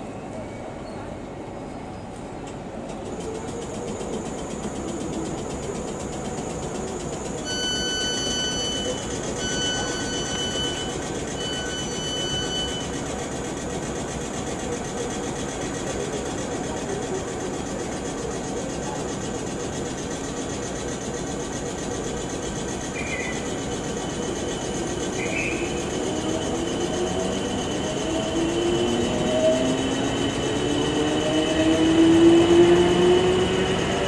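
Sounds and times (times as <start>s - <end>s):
train running noise: 0.0s - 34.0s
long electronic door beeps: 7.4s - 13.1s, 22.8s - 32.0s.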